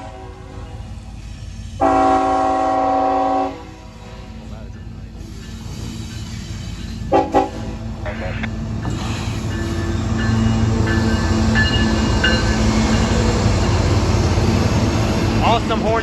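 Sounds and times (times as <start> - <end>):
locomotive horn blasts: 0.0 - 0.8, 1.8 - 4.0, 7.1 - 7.8
train rumbling: 0.0 - 16.0
crossing bell ringing: 9.2 - 14.1.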